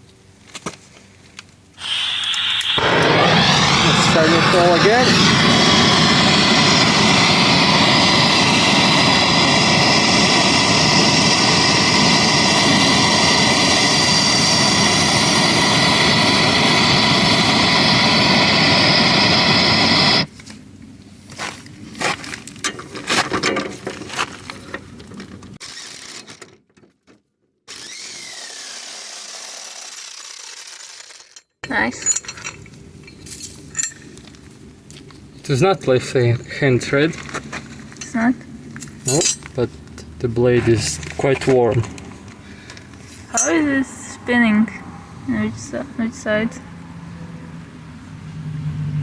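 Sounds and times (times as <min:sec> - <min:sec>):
loud motor running: 0:01.8 - 0:20.3, 0:27.7 - 0:31.4
metal knocks and clinks: 0:31.6 - 0:34.2.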